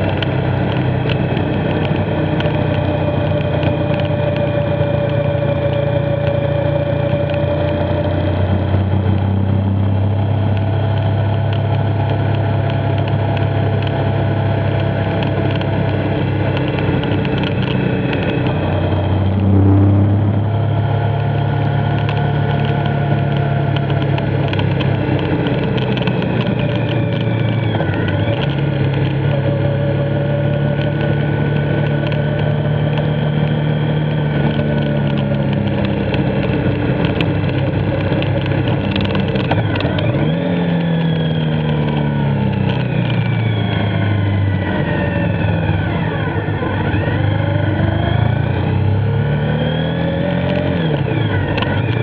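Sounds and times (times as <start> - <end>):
motorcycle engine running: 0.0 - 52.0
wind and road noise: 0.0 - 52.0.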